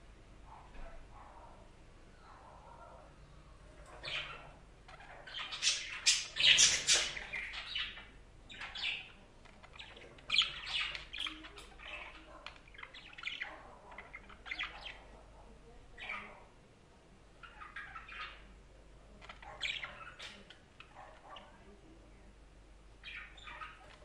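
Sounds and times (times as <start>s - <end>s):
budgerigars chirping and squawking: 3.9s - 15.2s, 16.0s - 16.5s, 17.4s - 18.5s, 19.2s - 21.7s, 23.0s - 24.0s.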